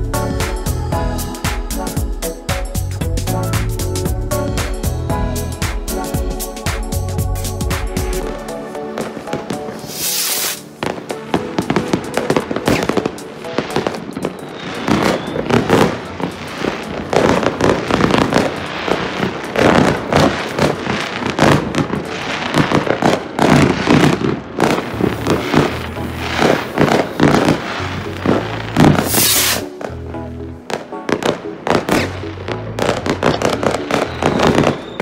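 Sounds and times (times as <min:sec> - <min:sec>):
fireworks bangs and crackles: 0:05.6 - 0:30.0, 0:30.7 - 0:35.0
firework hiss: 0:08.1 - 0:29.8.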